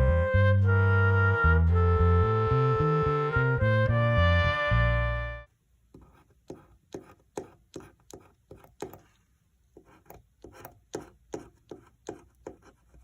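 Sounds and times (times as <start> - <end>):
scratching lottery ticket: 9.8 - 13.0.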